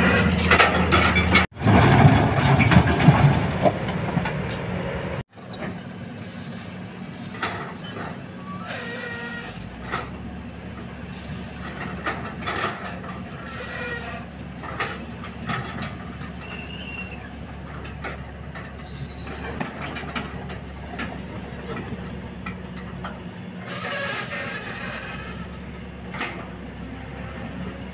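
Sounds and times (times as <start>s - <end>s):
excavator diesel engine hum: 0.0s - 27.9s
metallic clanks of bucket: 0.2s - 4.6s.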